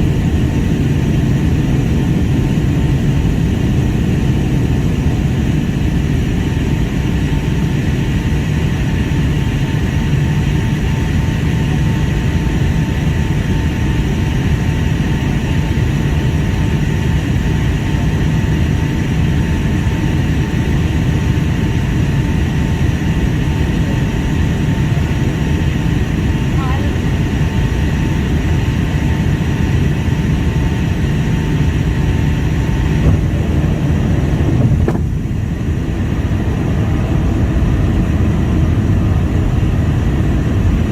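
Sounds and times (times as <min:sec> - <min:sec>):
airliner cabin engine rush: 0:00.0 - 0:40.9.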